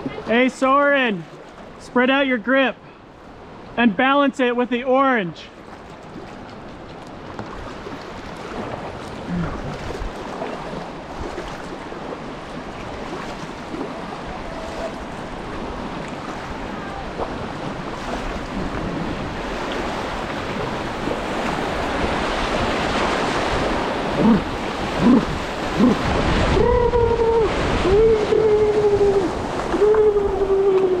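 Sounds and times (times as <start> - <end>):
water rushing around a kayak: 0.0 - 3.8, 5.4 - 31.0
high voice calling: 24.1 - 31.0.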